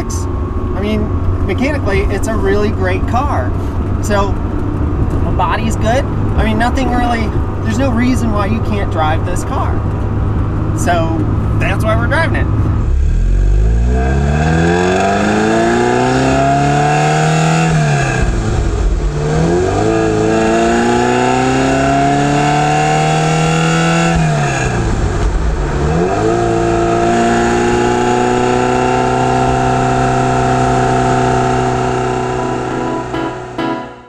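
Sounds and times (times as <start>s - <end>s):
car engine accelerating through gears: 12.4s - 33.6s.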